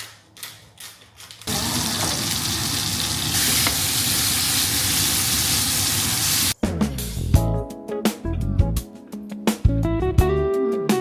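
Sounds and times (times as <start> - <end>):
steak sizzling in a pan: 1.5 - 6.6.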